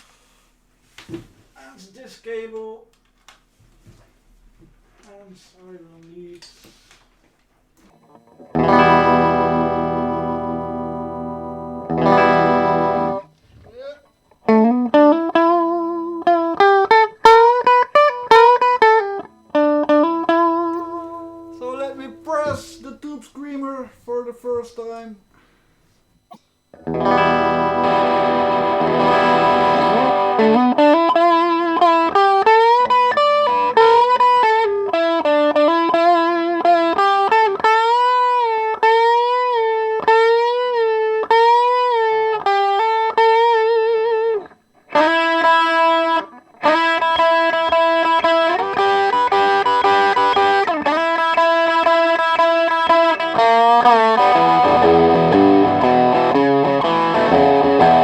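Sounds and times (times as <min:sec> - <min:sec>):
overdriven electric guitar: 0:07.8 - 0:22.9, 0:26.7 - 0:58.0.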